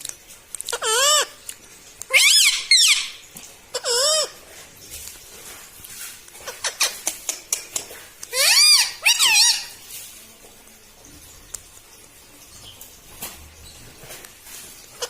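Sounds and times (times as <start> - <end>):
parakeet calls: 0.7 - 1.4, 2.1 - 4.5, 6.4 - 9.9.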